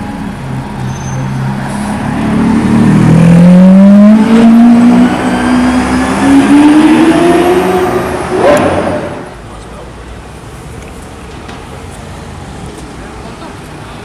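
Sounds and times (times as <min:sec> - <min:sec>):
sports car engine revving: 0:02.0 - 0:09.3.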